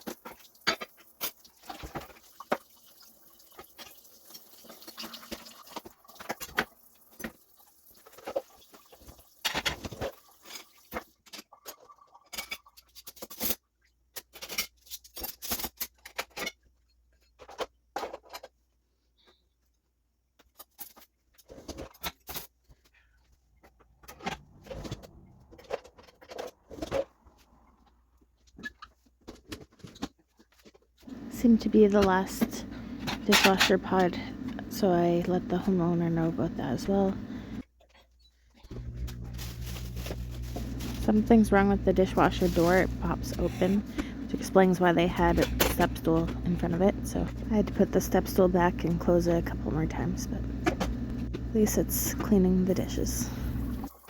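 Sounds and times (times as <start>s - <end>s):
dishes and cutlery clattering: 8.0s - 13.6s.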